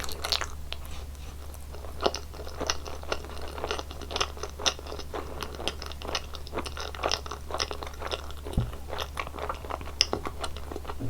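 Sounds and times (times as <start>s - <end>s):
wet sticky chewing: 1.5s - 11.0s
low thump: 8.6s - 8.8s.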